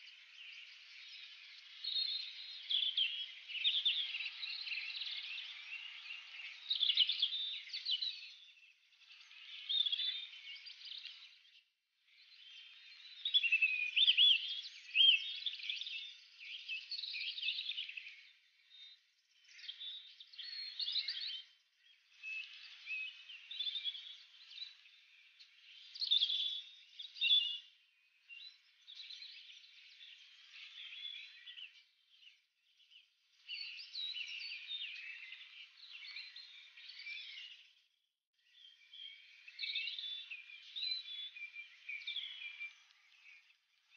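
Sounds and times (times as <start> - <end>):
birds chirping and whistling: 28.3 - 32.3, 33.4 - 37.7, 38.6 - 43.6.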